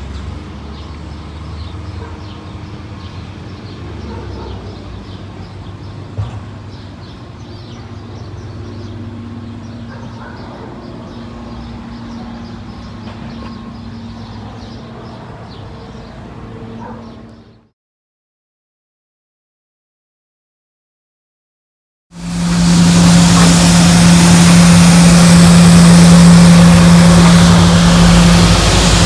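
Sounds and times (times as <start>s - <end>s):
garbage truck engine humming: 0.0s - 17.6s, 22.2s - 29.0s
steady tone: 22.2s - 29.0s.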